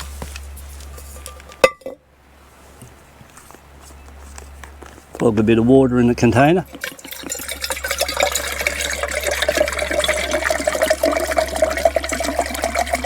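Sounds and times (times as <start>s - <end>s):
water pouring into container: 6.2s - 13.0s.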